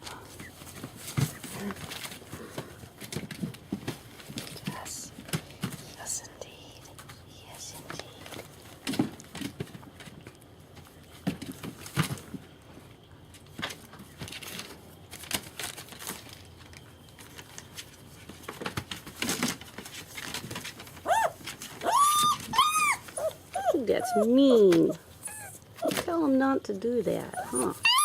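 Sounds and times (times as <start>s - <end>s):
puppies shuffling and knocking: 0.0s - 6.1s, 8.2s - 28.0s
puppy whining and yelping: 21.0s - 26.0s, 27.2s - 28.0s.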